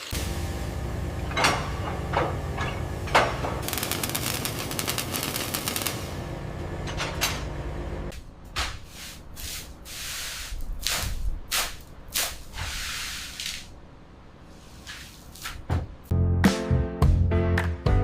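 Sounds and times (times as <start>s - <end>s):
mechanical hum: 0.0s - 16.1s.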